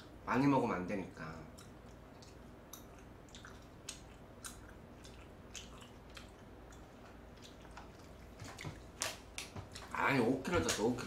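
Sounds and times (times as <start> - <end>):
wet chewing mouth smacks: 1.5 - 9.9.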